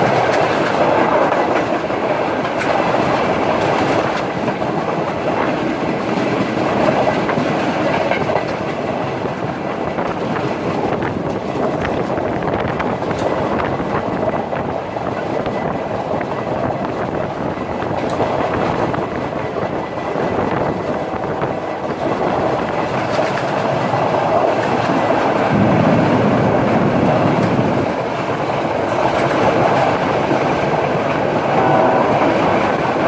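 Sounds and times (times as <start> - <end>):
wheels clicking over rail joints: 0.0 - 25.6
train rolling rumble: 0.0 - 33.0.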